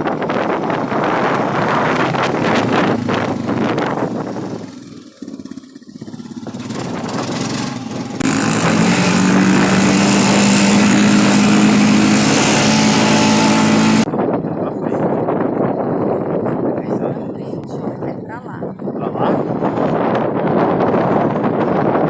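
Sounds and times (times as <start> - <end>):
drone propellers buzzing: 0.0 - 14.3
wind buffeting microphone: 0.0 - 22.0.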